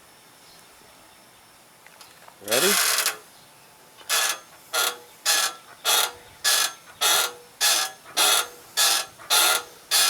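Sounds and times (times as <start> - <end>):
playground ride creaking: 2.4 - 3.3, 4.0 - 10.0.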